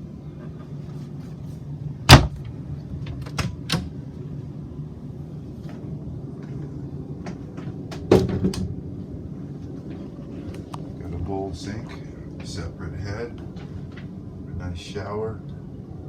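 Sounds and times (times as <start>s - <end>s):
cabinet door banging shut: 2.1s - 2.4s
door knocks: 2.1s - 2.4s
latch clicks: 3.1s - 3.9s.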